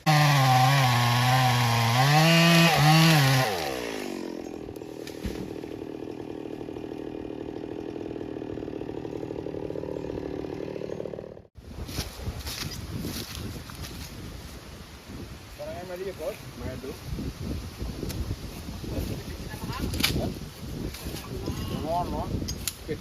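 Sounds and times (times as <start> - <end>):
chainsaw running: 0.0 - 11.5.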